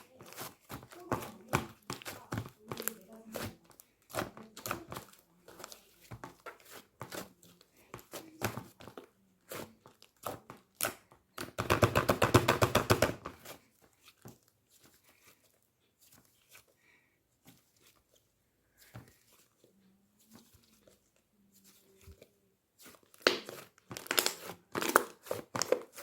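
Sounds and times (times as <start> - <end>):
sticky slime clicks and crackles: 23.2 - 26.0.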